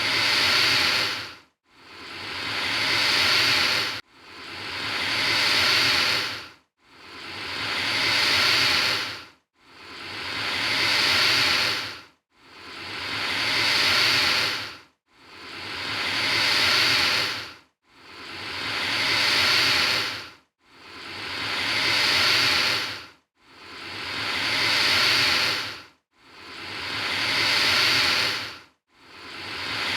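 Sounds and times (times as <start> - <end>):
alligator hissing: 0.0 - 1.3, 2.0 - 4.0, 4.8 - 6.4, 7.1 - 9.2, 9.9 - 12.0, 13.1 - 14.7, 15.4 - 17.4, 18.1 - 20.2, 20.9 - 23.0, 23.7 - 25.8, 26.4 - 28.5, 29.2 - 29.9.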